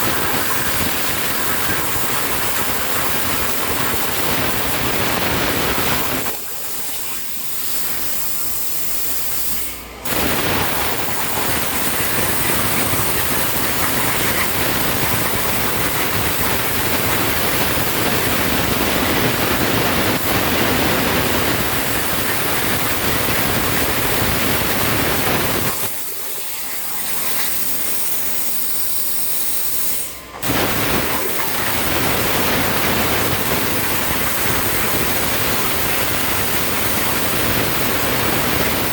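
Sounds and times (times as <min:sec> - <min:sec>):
plasma torch hissing: 0:00.0 - 0:26.5, 0:29.0 - 0:38.9.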